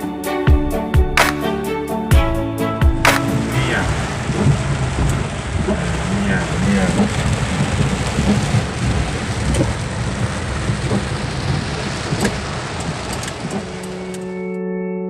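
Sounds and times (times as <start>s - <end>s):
soft keyboard music: 0.0s - 4.2s, 13.1s - 15.0s
steady rain: 3.1s - 14.4s.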